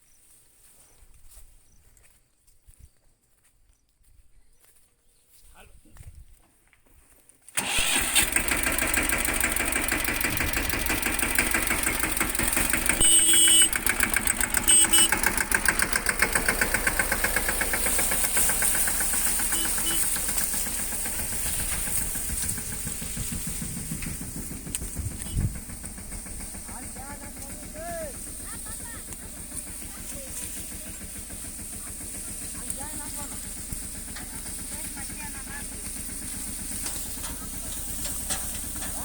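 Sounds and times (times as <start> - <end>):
tractor diesel engine running: 7.5 - 39.0
short high tones: 13.0 - 13.8, 14.6 - 15.2, 19.5 - 20.1.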